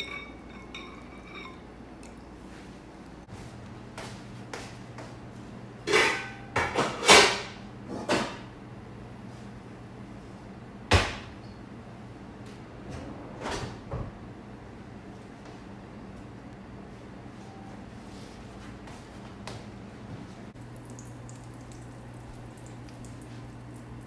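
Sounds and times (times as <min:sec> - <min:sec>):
kitchen knocks and clunks: 0:05.9 - 0:08.5, 0:10.9 - 0:11.4.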